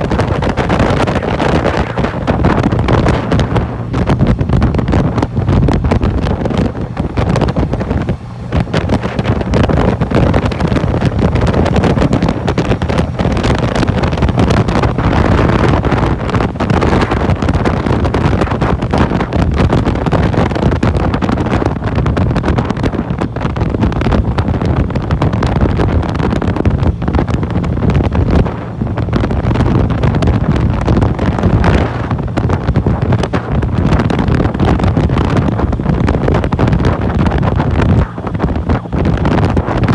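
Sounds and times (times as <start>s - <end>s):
motorcycle engine: 0.0s - 39.9s
road noise: 0.0s - 39.9s
wind buffeting microphone: 0.0s - 39.9s.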